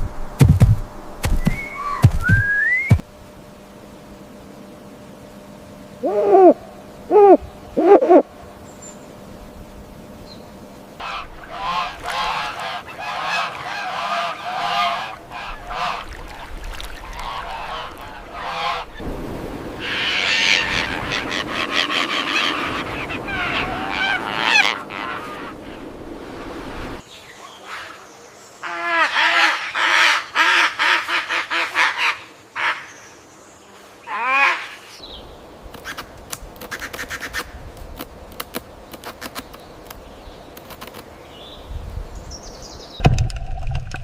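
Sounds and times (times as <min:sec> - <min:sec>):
bird honking calls: 0:11.0 - 0:19.0, 0:19.8 - 0:25.9
flock of birds honking: 0:11.0 - 0:19.0, 0:19.8 - 0:25.9.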